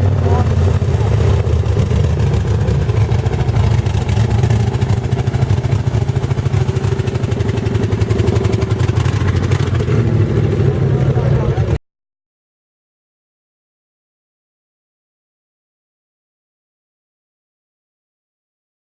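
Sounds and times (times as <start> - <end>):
truck engine running hard: 0.0 - 11.8.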